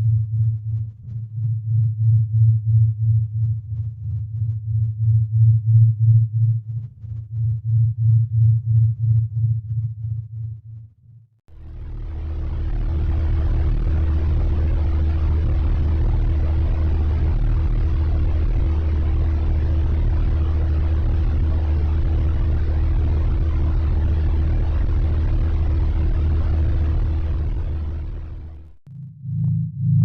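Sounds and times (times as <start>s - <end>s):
faint constant hum: 11.5s - 28.8s
deep steady rumble: 11.5s - 30.0s.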